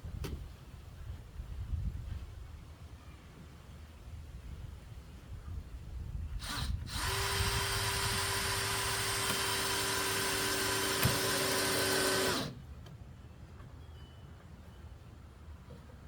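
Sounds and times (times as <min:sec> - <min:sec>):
power drill running: 0:06.4 - 0:12.6.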